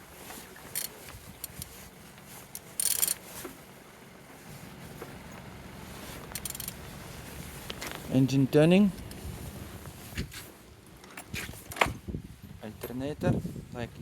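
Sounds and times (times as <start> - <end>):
low steady hum: 0.0 - 14.0
faint handling clicks: 6.2 - 6.8.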